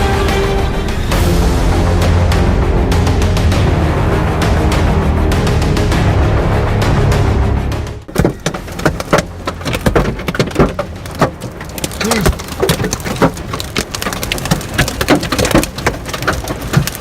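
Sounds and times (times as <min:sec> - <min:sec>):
hailstones pelting hard surfaces: 0:08.1 - 0:17.0.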